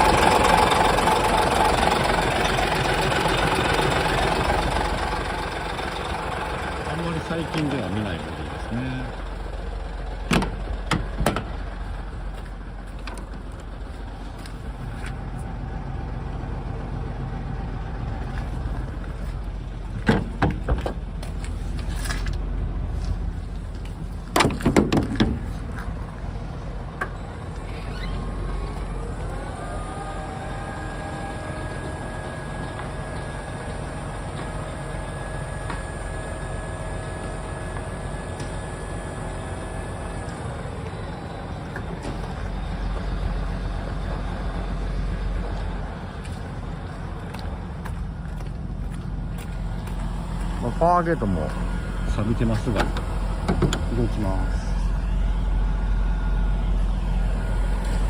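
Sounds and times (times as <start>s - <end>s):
diesel engine running: 0.0s - 58.0s
rising whine: 26.0s - 58.0s.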